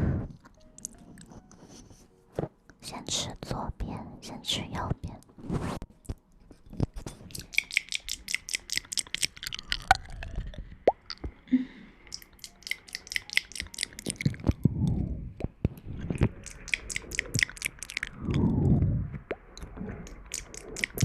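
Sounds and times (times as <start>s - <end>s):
wet mouth clicks and smacks: 0.5s - 1.0s, 6.8s - 11.3s, 12.0s - 15.5s, 16.2s - 19.4s, 20.0s - 21.0s.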